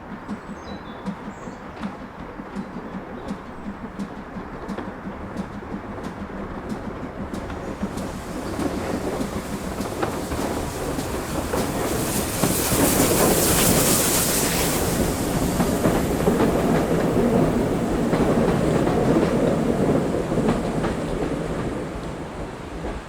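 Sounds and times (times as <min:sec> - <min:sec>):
train wheels clattering over rails: 0:00.0 - 0:23.0
steam hiss: 0:07.3 - 0:23.0.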